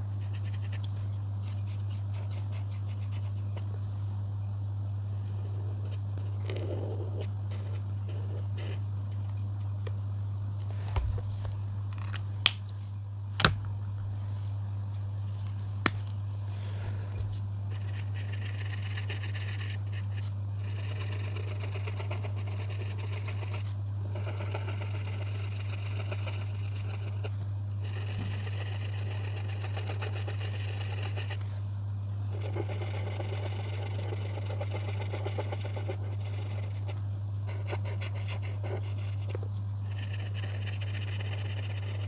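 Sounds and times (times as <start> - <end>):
steady low hum: 0.0 - 42.0
coloring strokes scratching on paper: 17.7 - 31.5, 32.3 - 42.0.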